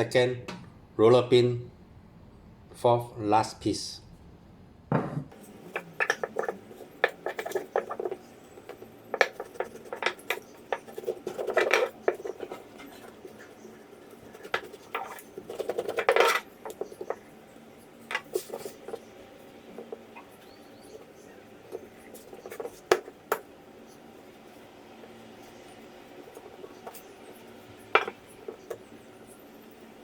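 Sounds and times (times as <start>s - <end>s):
rolling pin knocking and scraping: 4.9s - 23.5s, 25.5s - 29.9s
rolling pin rubbing on dough: 5.3s - 30.0s.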